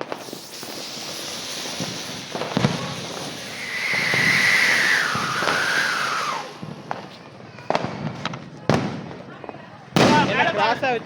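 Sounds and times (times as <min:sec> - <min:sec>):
firework whistling tone: 0:00.0 - 0:08.3
firework hissing: 0:00.0 - 0:09.0
sharp firework pops: 0:00.0 - 0:10.7.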